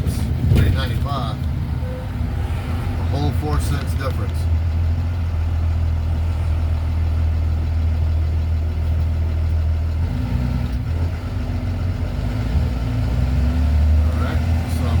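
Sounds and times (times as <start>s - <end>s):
road noise: 0.0s - 15.0s
truck diesel engine droning: 0.0s - 15.0s.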